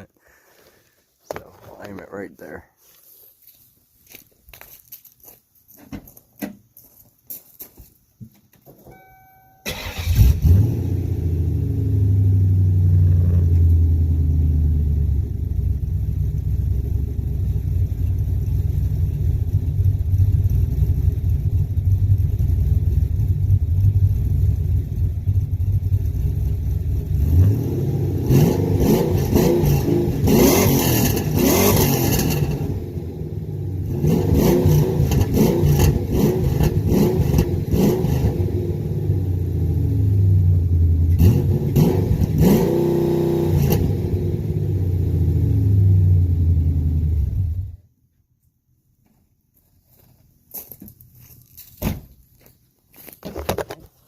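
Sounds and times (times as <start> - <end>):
vee eight engine starting and idling: 8.9 - 27.5
engine revving: 9.7 - 17.7, 25.4 - 47.8.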